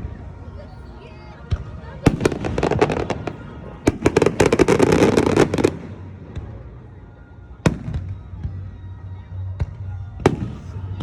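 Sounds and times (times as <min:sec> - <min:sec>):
fireworks crackling: 0:01.6 - 0:06.7.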